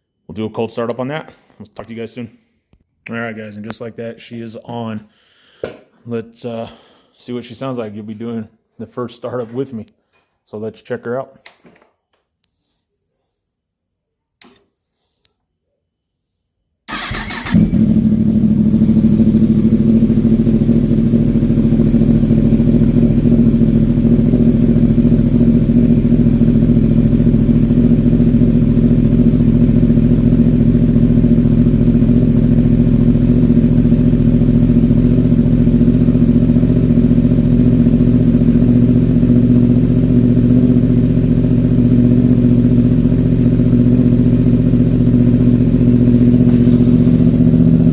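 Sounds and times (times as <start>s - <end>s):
motorcycle engine idling: 16.9s - 47.9s.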